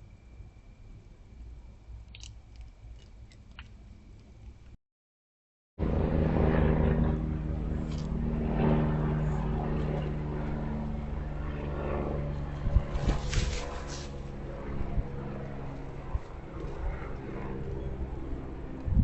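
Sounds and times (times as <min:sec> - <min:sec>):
engine drone: 0:05.8 - 0:19.0.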